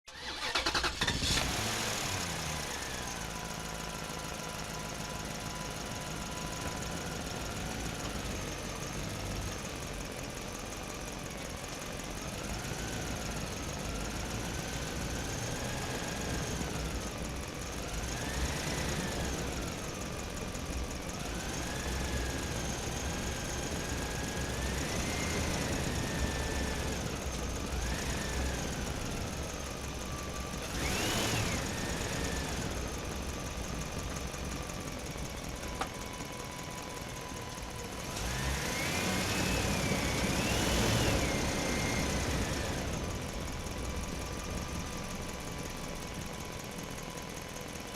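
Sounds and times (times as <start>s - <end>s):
electric motor and gearing whine: 12.3s - 47.4s.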